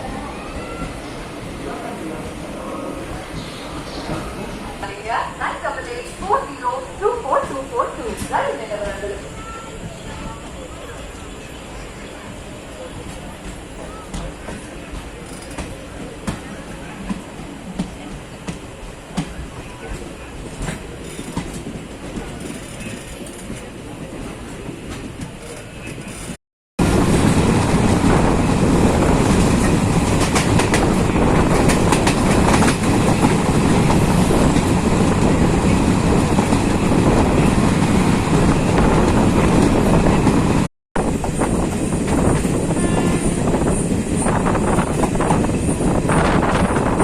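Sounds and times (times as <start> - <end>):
train wheels clattering on rails: 13.0 - 26.4, 29.0 - 47.0.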